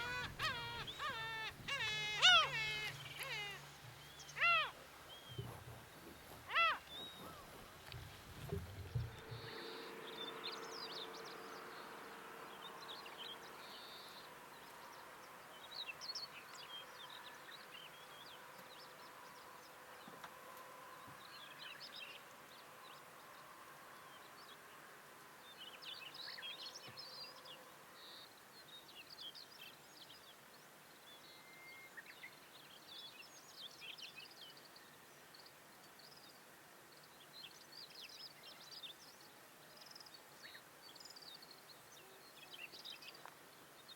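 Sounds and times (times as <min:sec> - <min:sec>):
small birds twittering: 0:00.0 - 0:09.6
soft outdoor hiss: 0:00.0 - 0:43.9.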